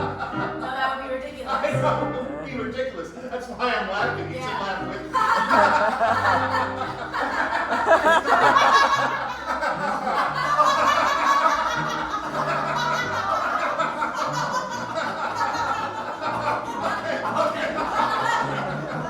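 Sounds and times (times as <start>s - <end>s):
people laughing: 0.0s - 19.0s.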